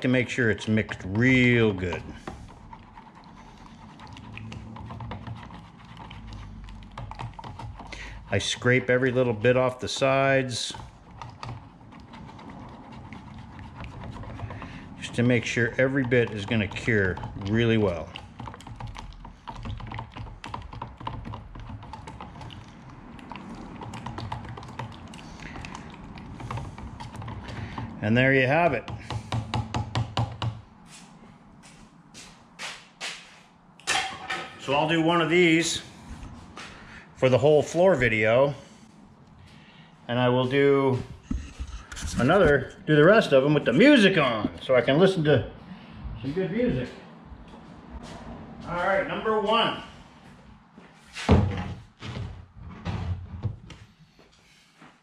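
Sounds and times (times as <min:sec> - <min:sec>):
stirring clicks taps and scrapes: 0:00.0 - 0:30.6, 0:41.0 - 0:43.0.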